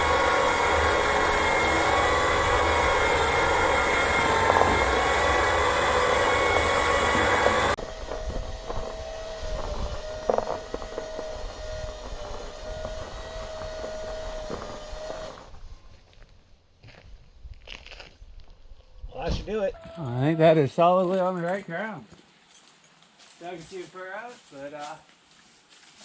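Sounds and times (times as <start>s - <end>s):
vehicle engine running: 0.0s - 8.8s
steady whine: 0.0s - 15.9s.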